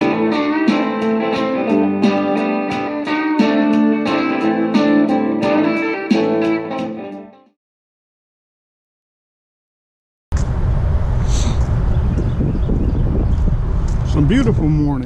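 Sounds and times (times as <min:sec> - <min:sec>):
plucked guitar: 0:00.0 - 0:07.5
sliding guitar notes: 0:00.0 - 0:07.5.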